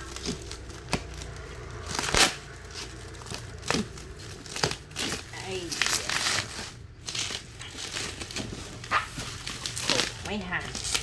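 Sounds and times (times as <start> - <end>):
cardboard packaging rustling: 0.0 - 11.0
tearing rustle: 0.0 - 11.0.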